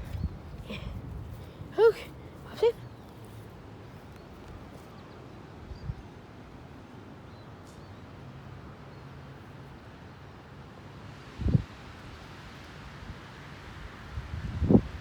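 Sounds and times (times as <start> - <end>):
strong wind on microphone: 0.0 - 1.8, 11.4 - 11.7, 14.0 - 15.0.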